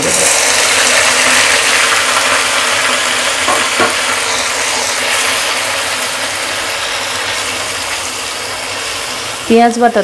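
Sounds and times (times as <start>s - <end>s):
paste sizzling in hot oil: 0.0s - 10.0s
knock: 3.5s - 4.0s.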